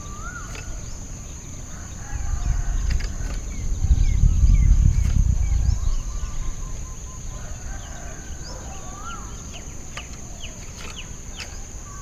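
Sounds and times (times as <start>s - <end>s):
birds chirping: 0.0s - 12.0s
rising and falling bird call: 0.0s - 12.0s
steady high-pitched whine: 0.0s - 12.0s.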